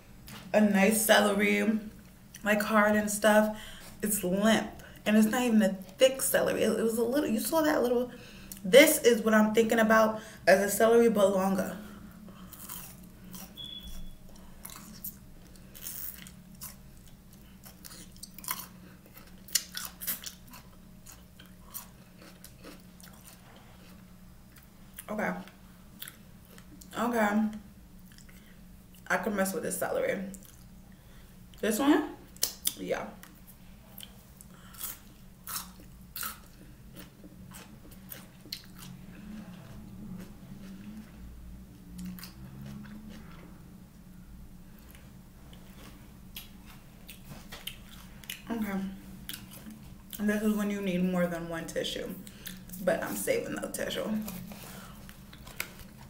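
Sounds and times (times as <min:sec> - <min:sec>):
person chewing celery: 0:12.3 - 0:25.1, 0:25.9 - 0:27.0, 0:28.0 - 0:29.1, 0:30.3 - 0:30.7, 0:32.3 - 0:43.6, 0:44.8 - 0:48.5, 0:49.2 - 0:50.2, 0:52.2 - 0:52.8, 0:54.2 - 0:56.0
celery crunching: 0:12.4 - 0:25.1, 0:52.2 - 0:56.0.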